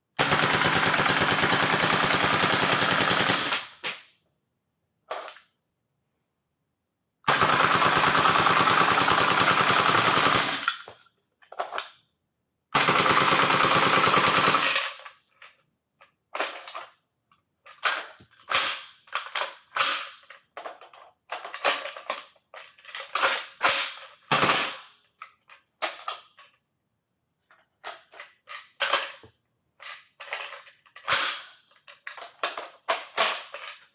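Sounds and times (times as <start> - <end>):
airsoft rifle firing bursts: 0.2 - 3.8, 7.3 - 10.6, 12.8 - 14.7, 24.3 - 24.8.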